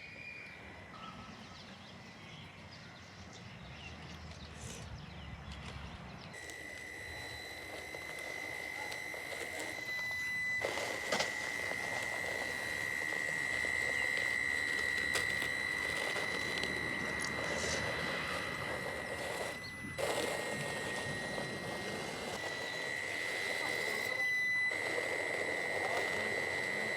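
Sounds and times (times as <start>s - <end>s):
gear and tyre noise: 0.0s - 26.9s
electric motor whine: 4.1s - 26.9s.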